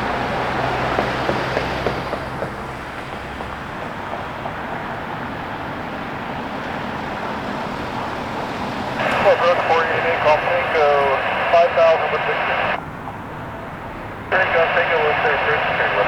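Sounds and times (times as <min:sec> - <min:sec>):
jet engine rushing: 0:00.0 - 0:12.8.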